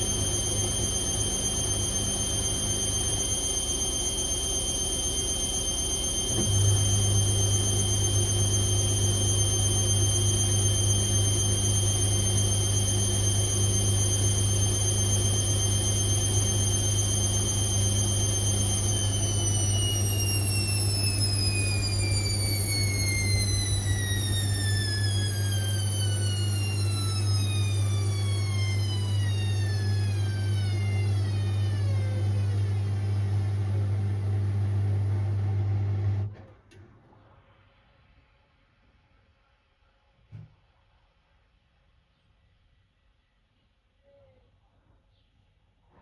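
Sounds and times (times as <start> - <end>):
high motor whine: 0.0 - 35.2
low hum: 0.0 - 35.6
washing machine spinning: 0.0 - 36.3.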